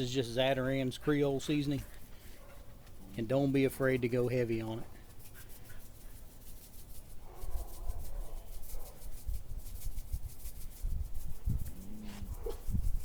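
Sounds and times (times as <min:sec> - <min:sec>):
hands rubbing seasoning on fish: 0:03.9 - 0:13.0.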